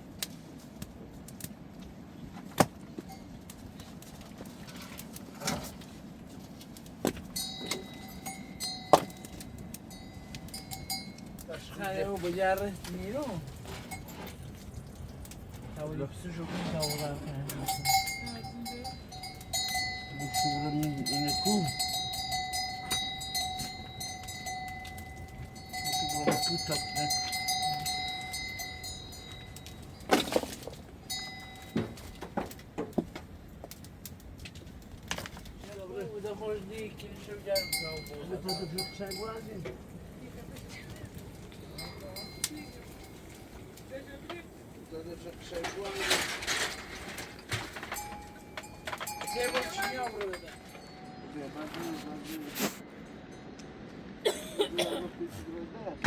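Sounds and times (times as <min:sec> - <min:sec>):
bell-like ringing: 0:07.4 - 0:11.4, 0:16.8 - 0:30.1, 0:31.0 - 0:32.2, 0:37.4 - 0:39.7, 0:41.5 - 0:43.6, 0:47.8 - 0:52.2
metallic clinking: 0:16.8 - 0:32.3, 0:40.9 - 0:51.9
metal clank: 0:45.4 - 0:51.2.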